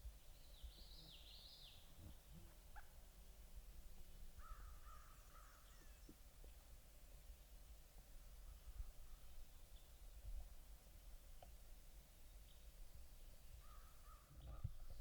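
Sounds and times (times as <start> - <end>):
faint bird calls: 0.6 - 3.0, 4.4 - 6.2, 13.6 - 15.0.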